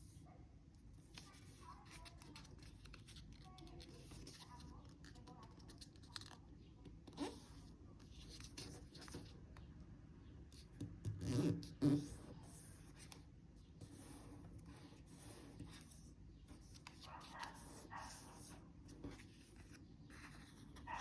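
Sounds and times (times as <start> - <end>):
paper crinkling while folded: 1.0 - 6.4.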